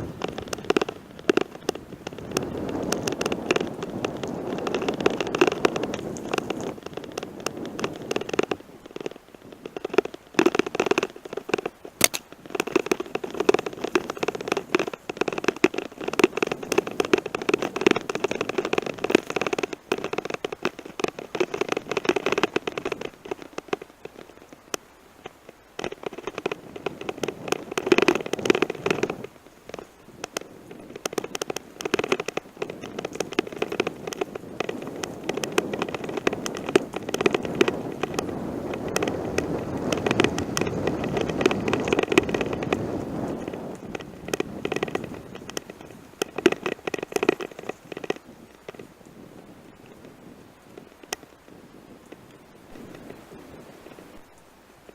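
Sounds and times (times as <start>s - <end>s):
bicycle tyres crunching on gravel: 0.0s - 51.9s
rattling clicks: 0.1s - 24.3s.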